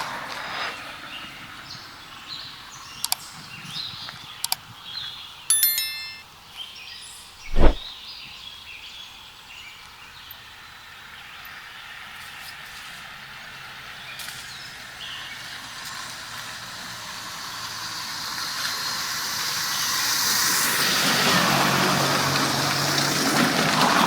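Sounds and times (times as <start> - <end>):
vehicle engine hum and road noise: 11.0 - 24.0.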